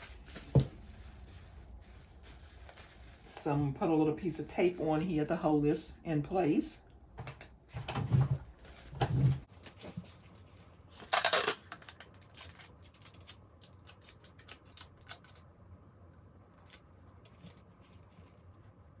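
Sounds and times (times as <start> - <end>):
adhesive tape ripping from roll: 11.0 - 15.4.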